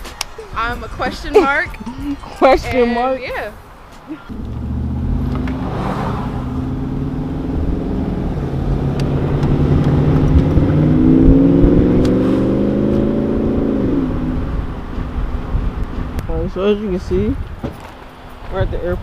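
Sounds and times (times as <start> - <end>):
car engine running: 4.3 - 18.1.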